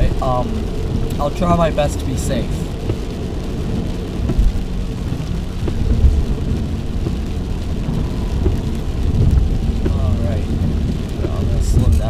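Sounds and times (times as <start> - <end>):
car rumbling on road: 0.0 - 12.0
rain on car body: 0.0 - 12.0
faint ticks: 4.2 - 10.4.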